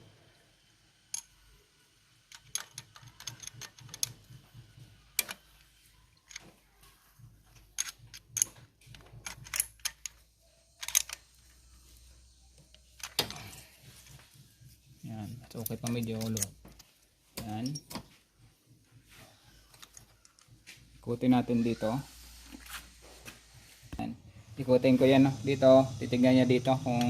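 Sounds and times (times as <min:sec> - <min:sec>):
metal tools clicking and clinking: 0:01.1 - 0:01.4, 0:02.3 - 0:04.4, 0:05.2 - 0:06.5, 0:07.5 - 0:11.7, 0:12.7 - 0:14.2, 0:15.4 - 0:18.1.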